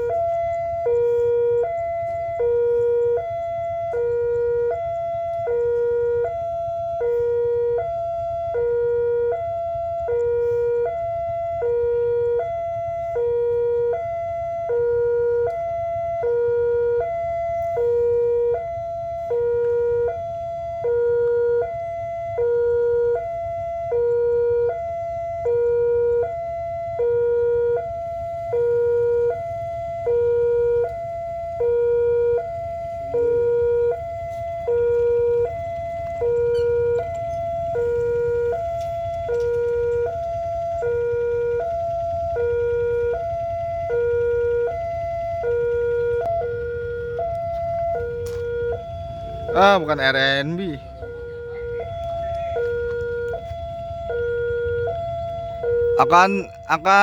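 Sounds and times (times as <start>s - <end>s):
two-tone warning alarm: 0.0s - 57.0s
low steady rumble: 30.5s - 56.0s.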